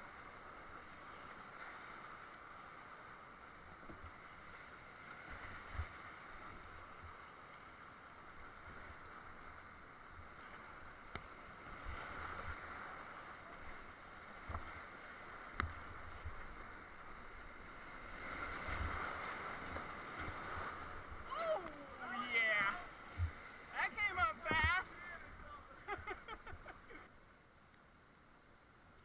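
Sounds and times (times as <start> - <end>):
whitewater rushing: 11.8 - 26.2.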